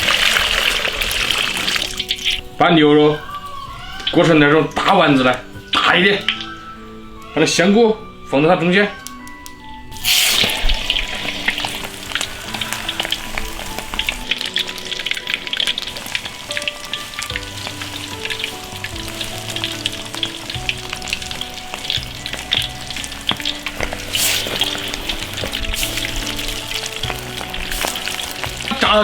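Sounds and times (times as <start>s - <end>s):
meatballs sizzling in hot oil: 0.0s - 2.4s, 10.0s - 29.0s.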